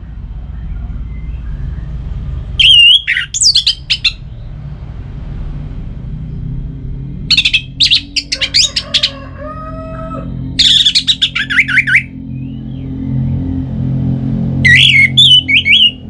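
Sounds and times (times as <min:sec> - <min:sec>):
steady low hum: 0:00.0 - 0:16.0
thrush singing: 0:07.3 - 0:16.0.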